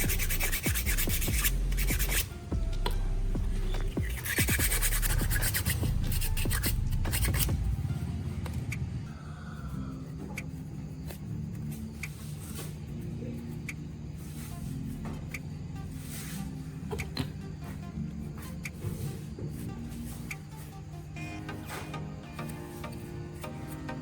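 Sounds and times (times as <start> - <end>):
abrasive sanding: 0.0 - 8.0, 14.1 - 15.1, 15.8 - 16.8
background music: 0.0 - 24.0.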